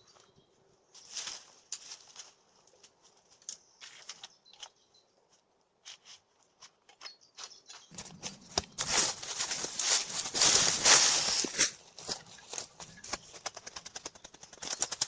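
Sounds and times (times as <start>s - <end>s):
dense rustling and crackling: 7.9s - 13.7s.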